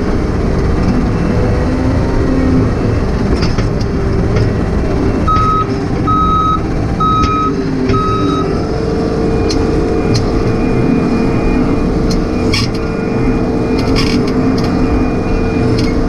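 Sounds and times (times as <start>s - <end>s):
diesel engine running: 0.0s - 16.0s
backup alarm beeping: 5.2s - 16.0s.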